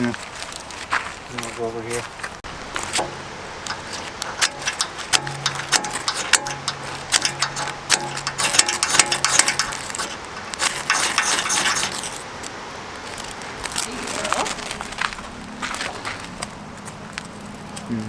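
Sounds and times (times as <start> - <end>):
campfire crackling: 2.0 - 18.0.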